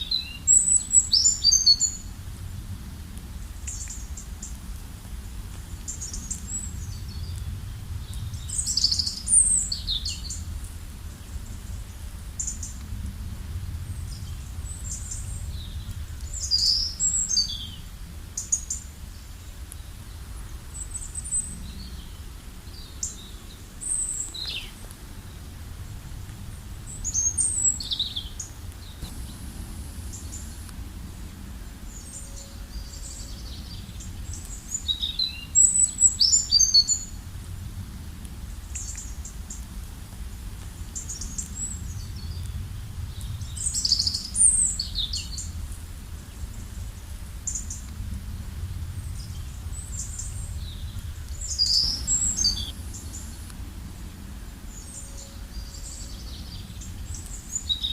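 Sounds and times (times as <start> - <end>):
low background rumble: 0.0 - 57.7
birds chirping and trilling: 26.9 - 37.2, 49.0 - 57.9.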